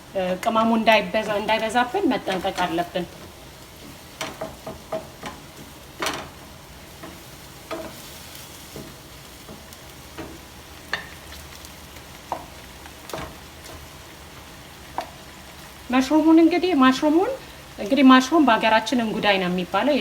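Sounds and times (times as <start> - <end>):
utensil stirring food: 0.0 - 17.8
food sizzling in a frying pan: 0.0 - 20.0
utensil clicking against pan: 0.3 - 6.4, 7.0 - 13.9.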